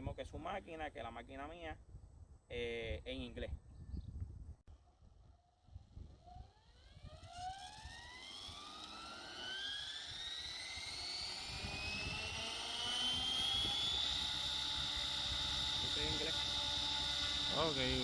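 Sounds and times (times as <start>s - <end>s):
rc helicopter rotor whine: 4.9s - 18.0s.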